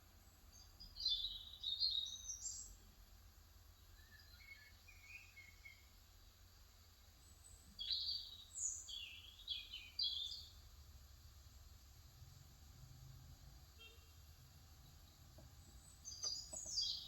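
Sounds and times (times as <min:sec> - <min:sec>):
bird chirping: 0:00.5 - 0:02.8, 0:03.8 - 0:05.9, 0:07.2 - 0:10.6, 0:14.8 - 0:17.0.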